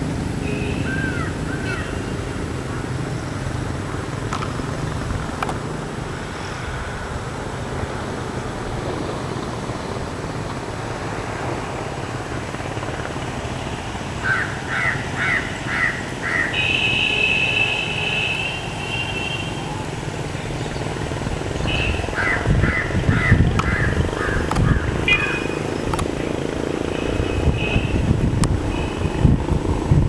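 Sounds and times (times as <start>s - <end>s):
outdoor background hum: 0.0s - 30.0s
bird harsh calls: 0.8s - 2.2s, 14.2s - 17.4s, 21.6s - 25.8s.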